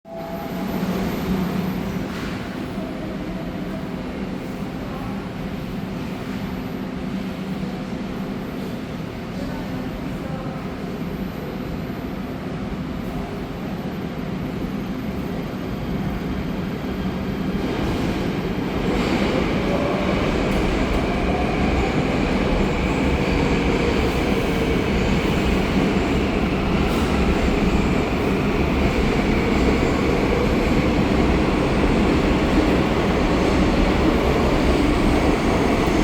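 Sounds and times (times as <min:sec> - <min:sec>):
train wheels rumbling on track: 0:14.5 - 0:36.0.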